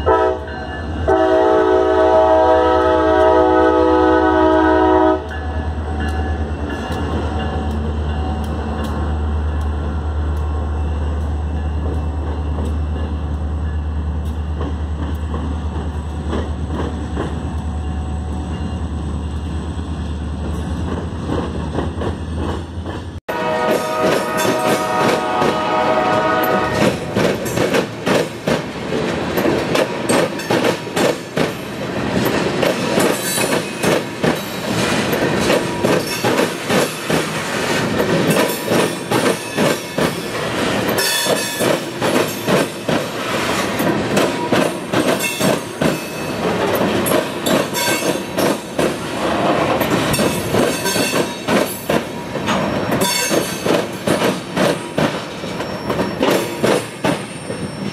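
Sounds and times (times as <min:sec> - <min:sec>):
train horn: 0:00.0 - 0:05.7, 0:23.3 - 0:27.1
freight cars rolling on rails: 0:00.0 - 0:57.9.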